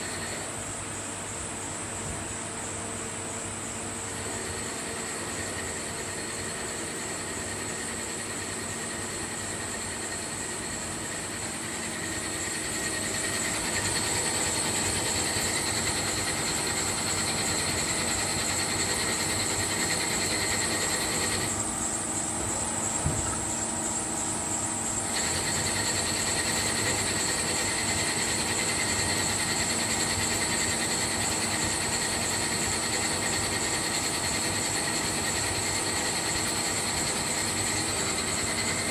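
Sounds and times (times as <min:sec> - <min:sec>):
machine tool whine: 0:00.0 - 0:01.3, 0:01.9 - 0:38.9
machine hiss: 0:03.4 - 0:38.9.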